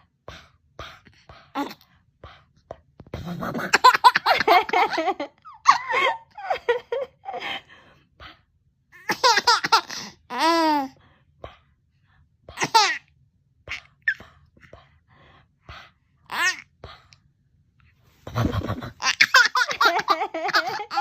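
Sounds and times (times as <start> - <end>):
baby laughing: 3.5 - 7.0, 9.0 - 10.9, 12.6 - 13.0, 16.3 - 16.6, 18.3 - 21.0.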